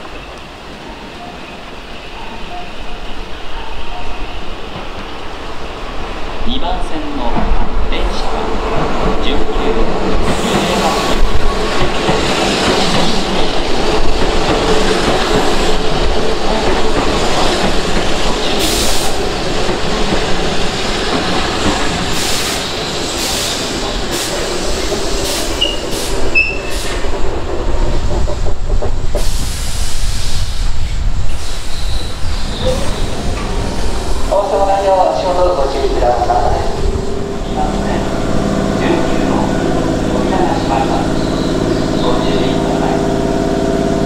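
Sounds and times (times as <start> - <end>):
train humming: 0.0 - 44.0
train wheel squeals: 22.1 - 27.1, 31.3 - 34.2.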